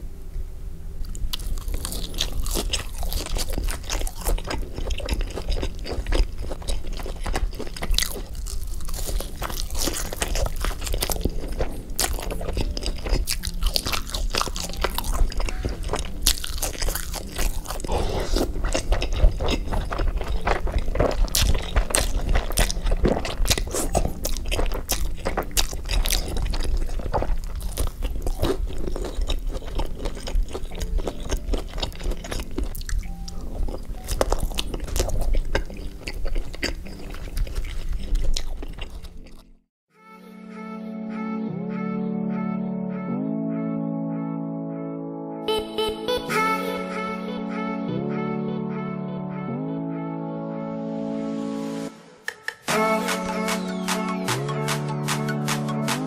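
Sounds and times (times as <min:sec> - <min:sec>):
wet chewing: 0:01.0 - 0:39.6
crisp crunching bites: 0:01.1 - 0:39.6.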